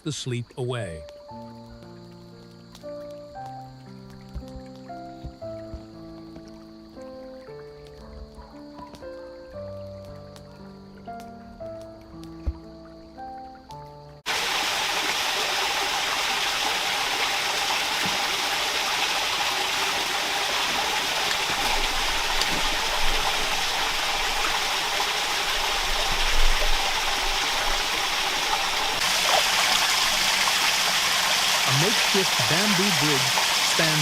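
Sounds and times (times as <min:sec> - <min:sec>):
stream rushing over rocks: 0:14.3 - 0:34.0.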